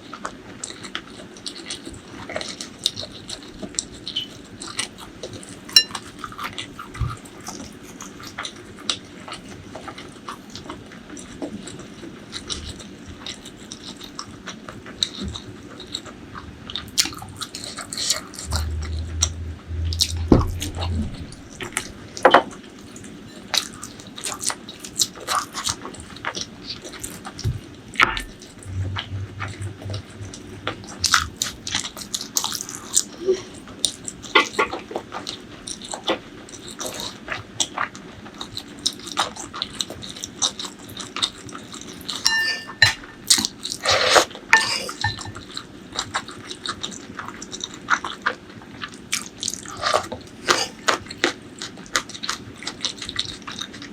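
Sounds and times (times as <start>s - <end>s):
brief ringing tone: 42.3s - 43.3s.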